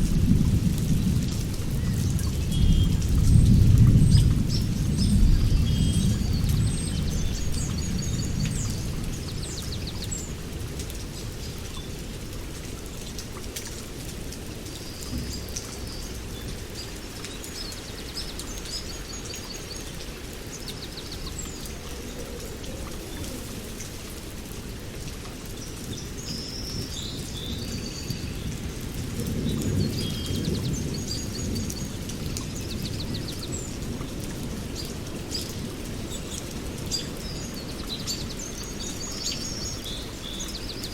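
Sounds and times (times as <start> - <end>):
songbirds chirping and trilling: 29.3 - 40.9.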